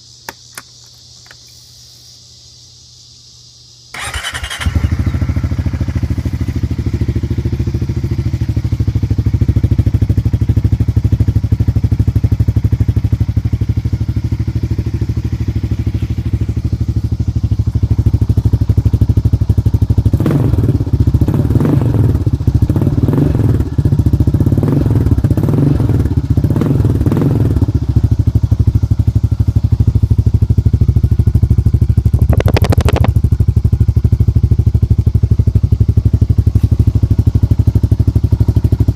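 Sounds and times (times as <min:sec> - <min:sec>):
atv engine idling and revving: 0:03.9 - 0:38.9.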